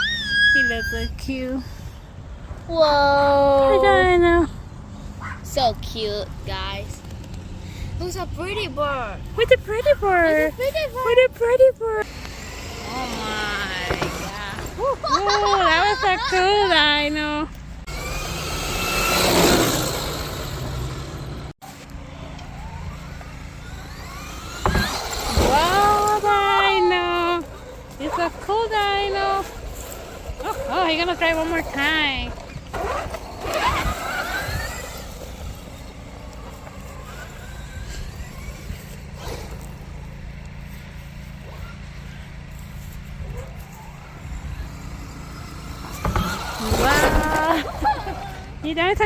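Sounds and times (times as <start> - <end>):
tyre and drivetrain noise: 3.6 - 49.0
electric motor whining: 11.0 - 15.1, 15.7 - 48.7.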